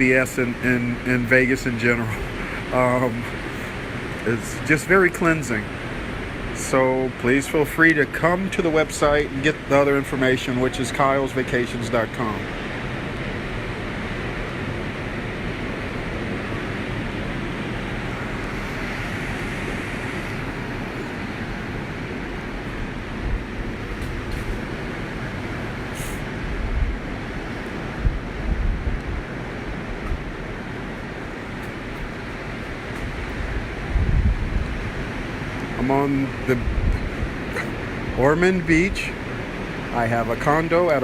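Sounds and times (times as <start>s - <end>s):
ocean surf: 0.0s - 41.0s
wind: 0.0s - 41.0s
wind buffeting microphone: 12.6s - 41.0s.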